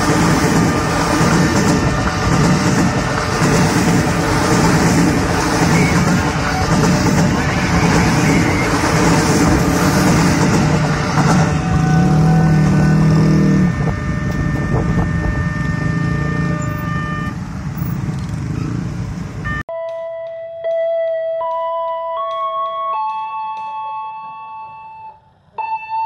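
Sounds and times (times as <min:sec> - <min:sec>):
steady tones: 0:00.0 - 0:17.7
electric train wheels rushing: 0:00.0 - 0:19.5
traffic noise: 0:00.0 - 0:19.7, 0:23.6 - 0:25.7.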